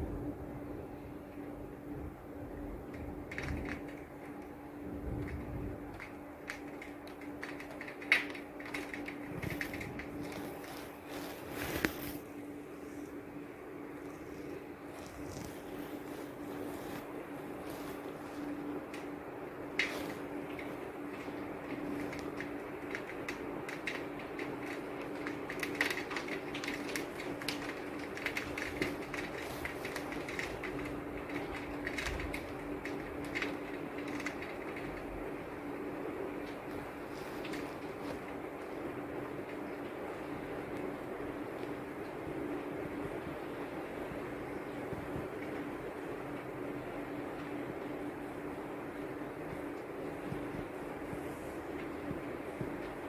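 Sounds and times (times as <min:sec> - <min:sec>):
faint steady hum: 0:00.0 - 0:53.0
raindrops ticking on hard surface: 0:02.4 - 0:11.9, 0:17.6 - 0:53.0
rain falling: 0:14.9 - 0:44.8.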